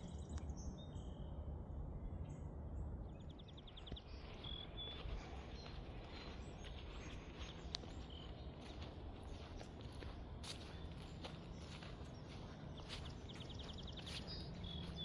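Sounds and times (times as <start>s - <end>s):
songbirds singing and chirping: 0.0s - 15.0s
light footsteps on path: 3.4s - 15.0s.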